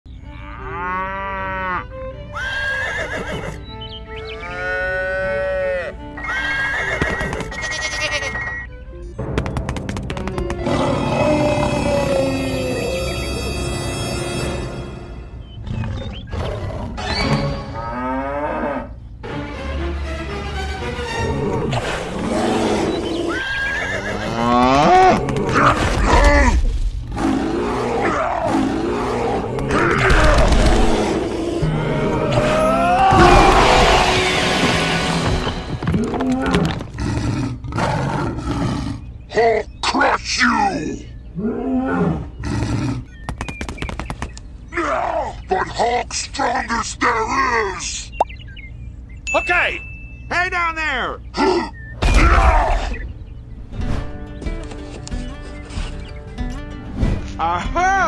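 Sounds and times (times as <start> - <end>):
background music: 0.1 - 37.2, 52.2 - 58.0
farm animal cries: 0.2 - 8.7, 21.4 - 25.2.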